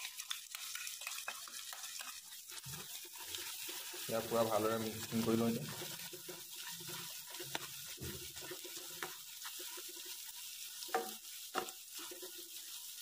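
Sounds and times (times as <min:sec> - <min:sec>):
meat sizzling in oil: 0:00.0 - 0:13.0
spatula scraping a pan: 0:00.0 - 0:13.0
spatula knocking a pan: 0:05.1 - 0:12.6.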